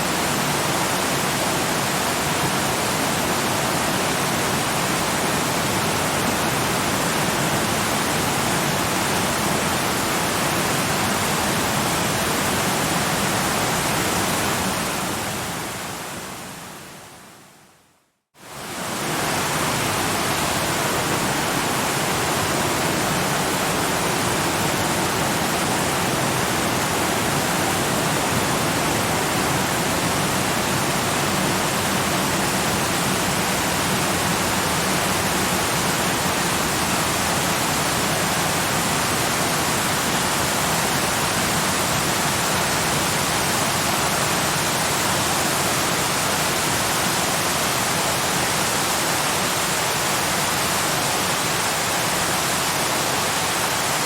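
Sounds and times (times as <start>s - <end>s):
waterfall rushing: 18.4s - 54.0s.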